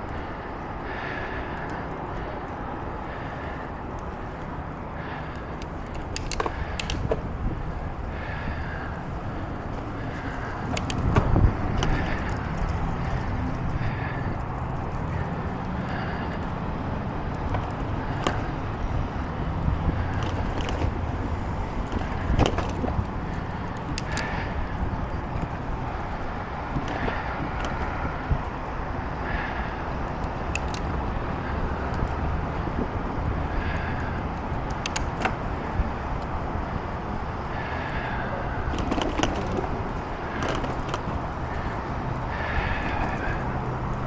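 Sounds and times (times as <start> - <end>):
bicycle rumbling in motion: 0.0 - 44.0
wind: 0.0 - 44.0
tyre noise: 3.1 - 44.0
light clicks: 5.3 - 7.3, 30.2 - 31.0.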